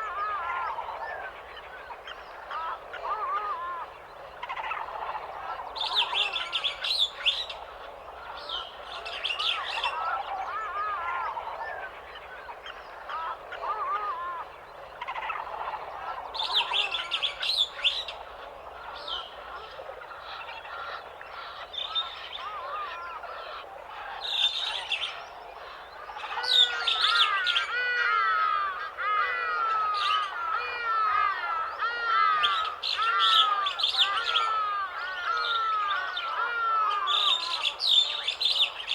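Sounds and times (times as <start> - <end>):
birds chirping and calling: 24.0 - 38.9.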